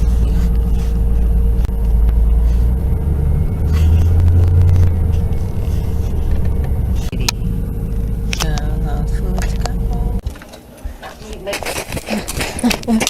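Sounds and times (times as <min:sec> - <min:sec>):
car engine rumble inside cabin: 0:00.0 - 0:10.2
faint hum: 0:00.0 - 0:12.8.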